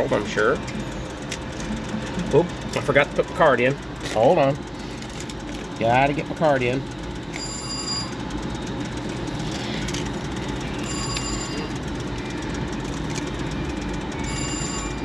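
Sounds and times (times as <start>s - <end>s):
slot machines din: 7.3s - 8.4s, 10.4s - 15.0s.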